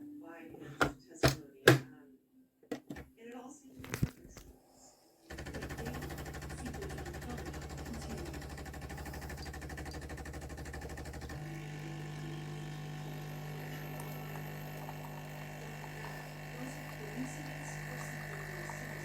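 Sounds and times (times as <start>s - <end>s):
coffee machine pulsing and humming: 5.3s - 19.0s.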